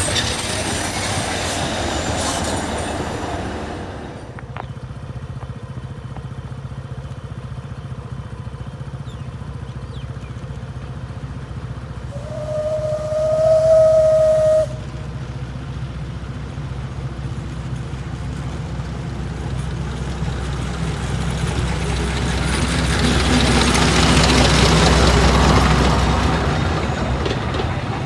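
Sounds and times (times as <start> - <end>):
steam locomotive whistle: 0.0 - 4.4, 12.1 - 15.2
locomotive rumble and steam hiss: 0.0 - 4.5, 12.0 - 28.0.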